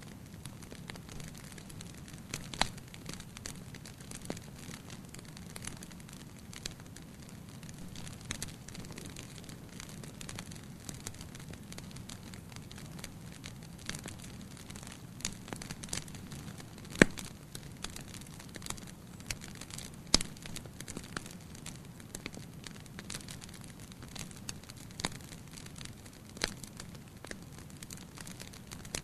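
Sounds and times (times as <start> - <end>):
wood fire crackling and popping: 0.0 - 29.0.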